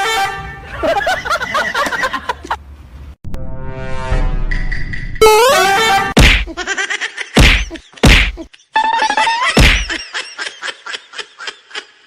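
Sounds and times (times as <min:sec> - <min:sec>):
loud whacks: 0:06.2 - 0:06.6, 0:07.4 - 0:08.5, 0:09.6 - 0:10.0
pitched sliding tones: 0:08.8 - 0:09.6.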